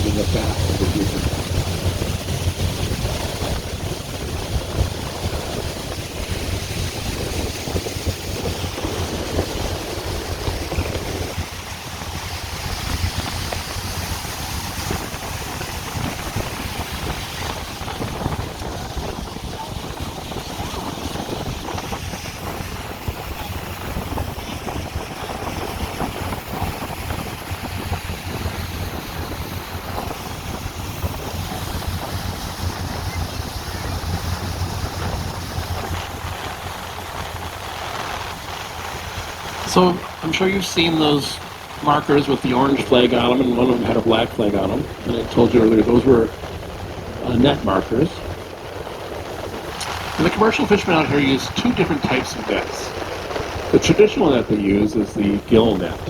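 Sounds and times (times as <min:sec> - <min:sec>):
boat engine droning: 0:00.0 - 0:56.0
water rushing: 0:00.0 - 0:56.0
wind buffeting microphone: 0:00.0 - 0:56.0.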